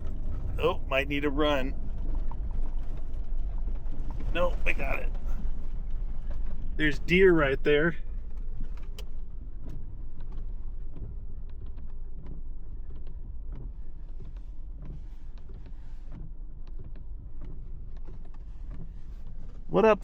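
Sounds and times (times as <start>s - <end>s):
low vehicle rumble: 0.0s - 20.0s
small creaks and clicks: 8.3s - 19.7s.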